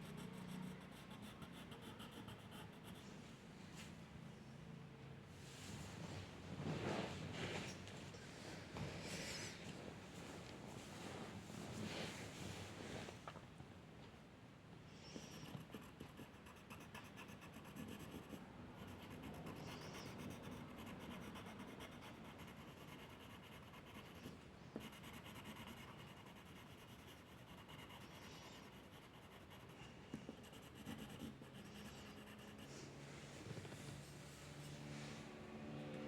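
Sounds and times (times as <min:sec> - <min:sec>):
drawing tool scratching paper: 0:00.0 - 0:03.0, 0:15.2 - 0:33.0.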